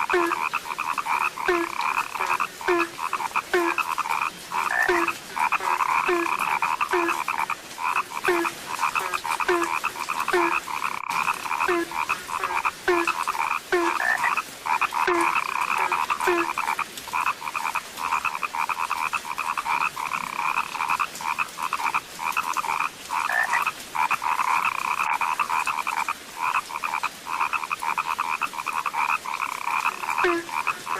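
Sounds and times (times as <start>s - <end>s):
deeper frog call: 0.0s - 16.8s, 28.7s - 30.9s
chorus of frogs croaking: 0.0s - 30.9s.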